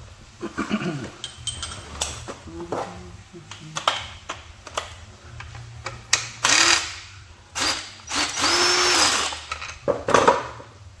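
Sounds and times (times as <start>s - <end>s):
power tool spinning a fastener: 6.4s - 7.0s, 7.6s - 9.5s.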